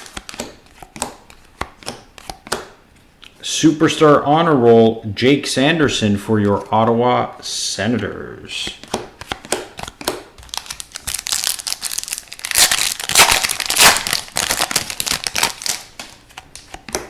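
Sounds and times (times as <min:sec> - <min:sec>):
foil wrapper crinkling: 0:10.4 - 0:16.2.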